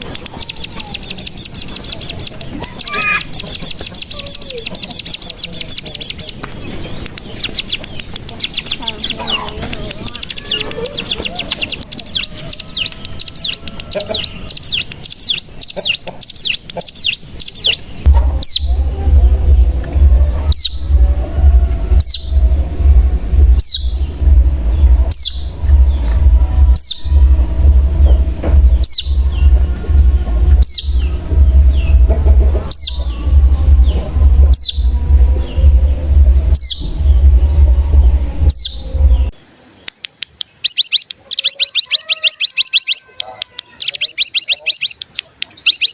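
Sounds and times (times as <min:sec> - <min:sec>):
bird trilling and calling: 0:00.0 - 0:39.3, 0:40.2 - 0:45.9
loud steady low hum: 0:18.0 - 0:39.3.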